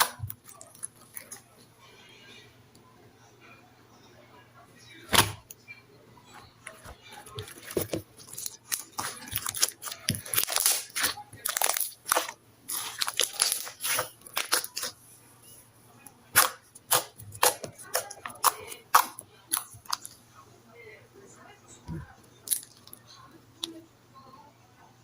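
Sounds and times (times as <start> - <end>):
wet slime squishes: 6.7 - 15.0, 16.3 - 20.2, 22.4 - 23.0.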